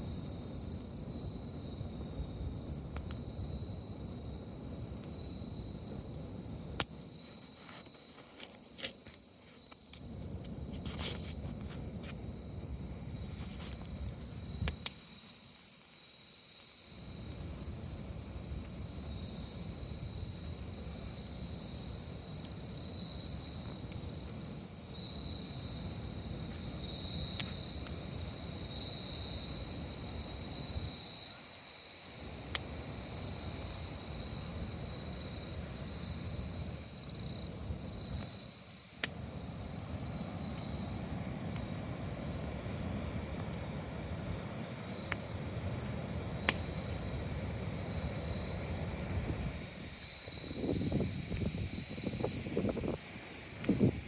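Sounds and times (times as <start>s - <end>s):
campfire crackles: 0.0s - 54.0s
crickets chirring: 0.0s - 54.0s.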